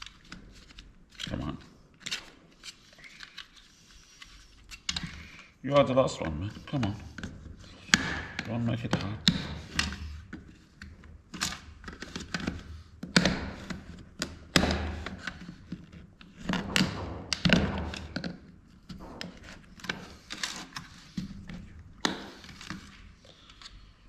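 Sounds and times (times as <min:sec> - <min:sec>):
plastic and metal parts knocking: 0:07.1 - 0:10.4, 0:11.0 - 0:22.8.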